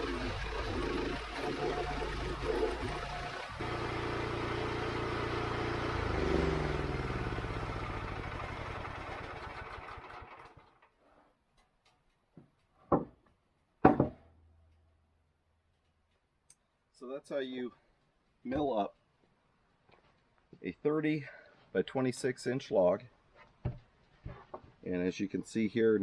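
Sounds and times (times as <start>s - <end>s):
sawmill gas engine running: 0.0s - 10.8s
loud sharp knocks: 13.8s - 14.2s.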